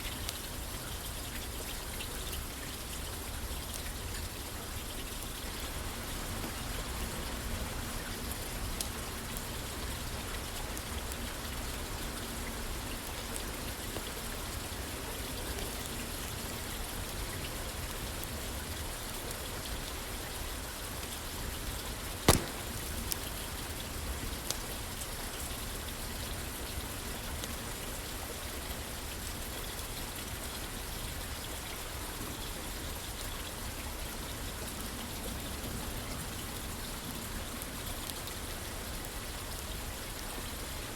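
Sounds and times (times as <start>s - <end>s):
rain falling on a roof: 0.0s - 40.9s
wood fire crackling and popping: 21.6s - 25.3s.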